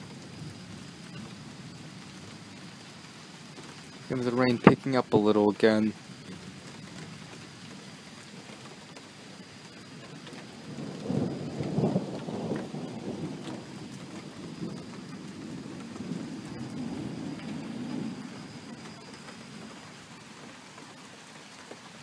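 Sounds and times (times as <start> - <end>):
rumble of thunder: 0.0 - 2.8, 5.9 - 20.3
steady rain: 0.0 - 22.0.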